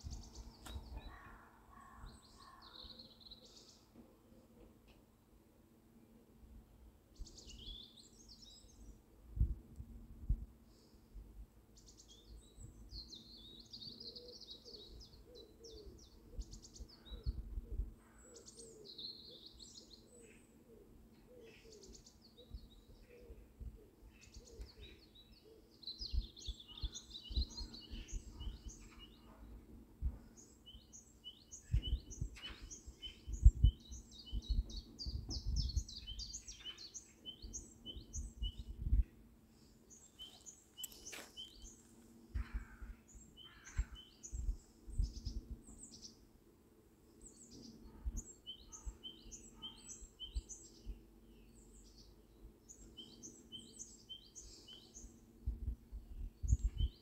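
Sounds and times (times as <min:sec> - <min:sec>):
birds chirping: 0:24.2 - 0:29.6, 0:39.6 - 0:46.2.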